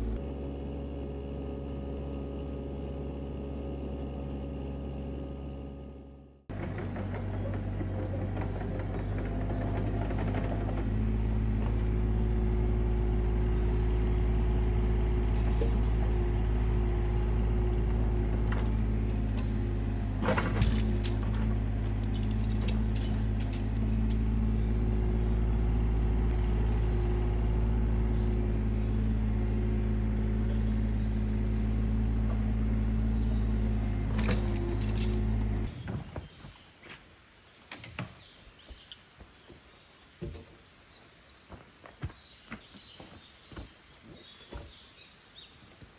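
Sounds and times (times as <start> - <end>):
car engine running: 0.0 - 35.8
light rattles: 14.4 - 36.1.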